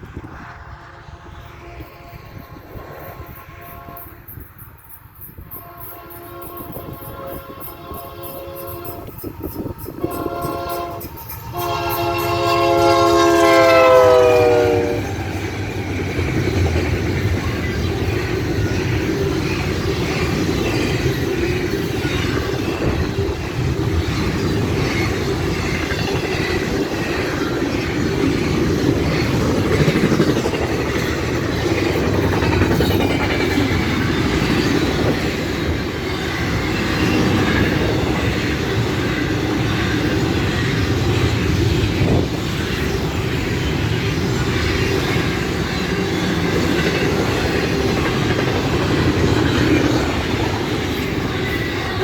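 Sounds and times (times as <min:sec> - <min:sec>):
freight train rumbling past: 0:00.0 - 0:52.0
locomotive air horn blast: 0:00.9 - 0:04.2, 0:05.5 - 0:09.2, 0:10.0 - 0:15.1.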